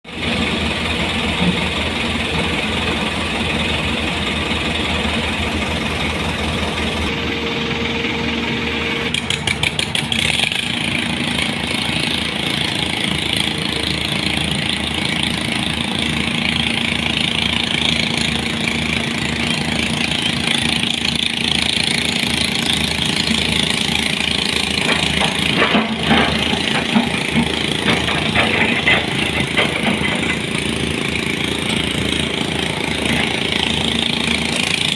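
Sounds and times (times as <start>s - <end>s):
heavy vehicle engine running: 0.0s - 34.9s
loud clatters: 23.8s - 31.4s.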